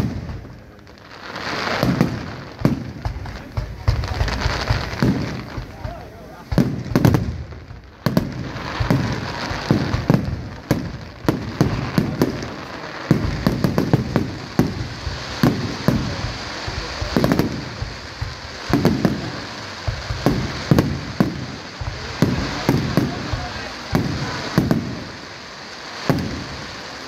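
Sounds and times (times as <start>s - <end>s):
crackle of firework stars: 0.0s - 27.0s
fireworks shells booming: 0.0s - 27.0s.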